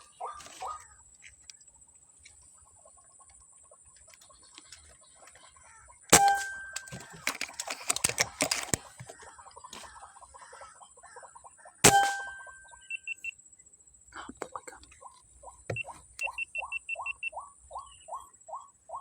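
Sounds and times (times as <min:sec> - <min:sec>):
loud metallic clang: 0:06.1 - 0:07.0, 0:11.8 - 0:12.7
quick clicks and rattles: 0:06.4 - 0:09.9.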